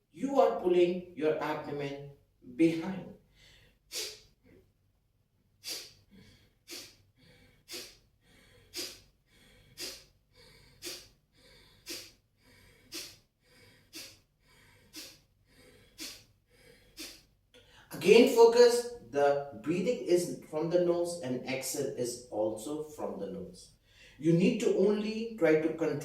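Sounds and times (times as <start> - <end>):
forceful nasal exhales: 3.4 - 4.6, 5.6 - 17.8.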